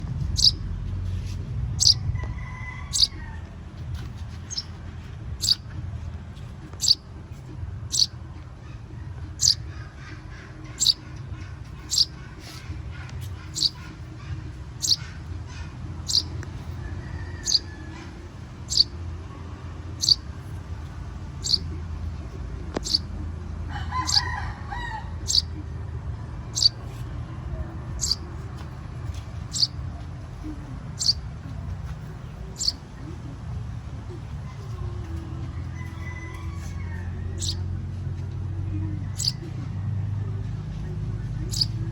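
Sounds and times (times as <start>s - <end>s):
young birds peeping: 0.0s - 5.8s, 6.4s - 37.7s, 38.6s - 41.9s
low rumble: 0.0s - 23.7s.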